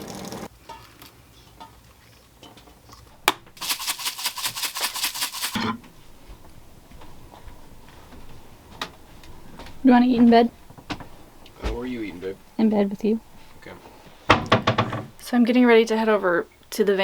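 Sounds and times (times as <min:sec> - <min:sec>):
utensil scraping strokes: 0:03.0 - 0:14.3.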